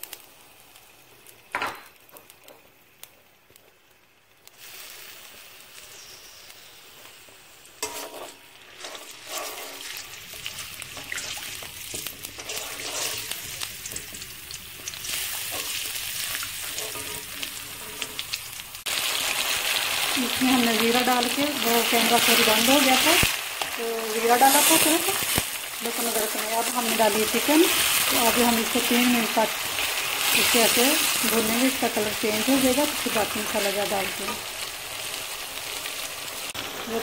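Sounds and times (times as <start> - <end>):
paste sizzling in hot oil: 4.4 - 37.0
spatula scraping a pan: 7.8 - 18.4.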